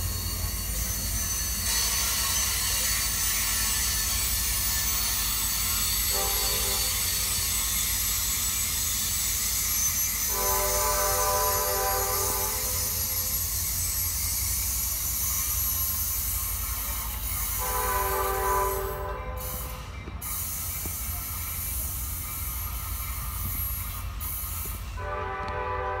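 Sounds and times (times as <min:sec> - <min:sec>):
train wheel and track noise: 0:00.0 - 0:26.0
train horn: 0:06.0 - 0:07.2, 0:10.2 - 0:13.3, 0:17.6 - 0:19.9, 0:25.0 - 0:26.0.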